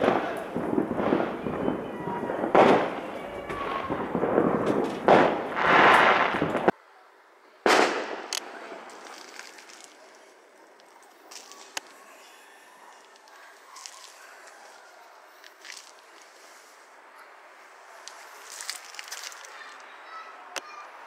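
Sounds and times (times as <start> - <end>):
sharp firework bang: 0.0 - 6.7, 7.7 - 8.4
fireworks bangs and crackle: 0.0 - 6.8, 7.6 - 16.9.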